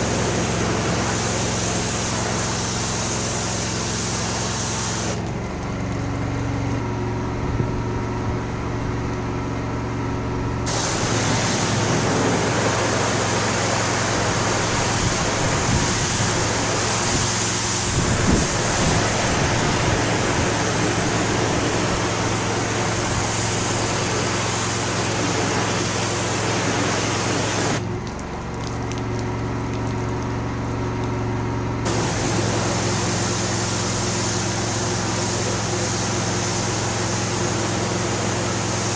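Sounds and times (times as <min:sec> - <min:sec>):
high-pressure water jet spraying: 0:00.0 - 0:05.4, 0:10.7 - 0:27.9, 0:31.8 - 0:38.9
pressure washer motor humming: 0:00.0 - 0:38.9.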